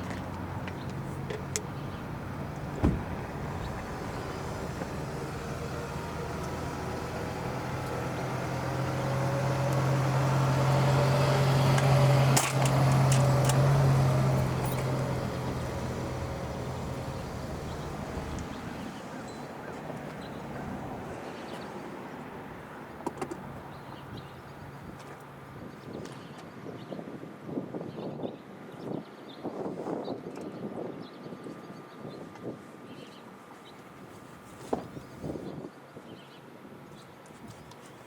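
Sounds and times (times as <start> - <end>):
vehicle engine humming: 0.0 - 25.8, 33.8 - 35.5.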